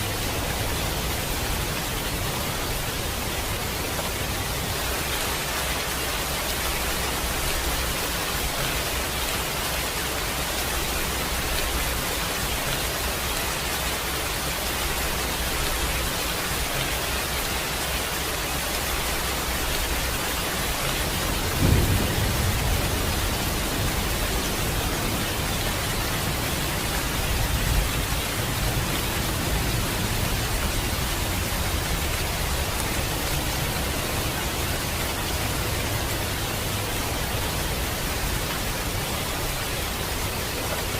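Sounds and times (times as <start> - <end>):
steady rain: 0.0 - 40.9
thunder clap and rumble: 20.8 - 36.2.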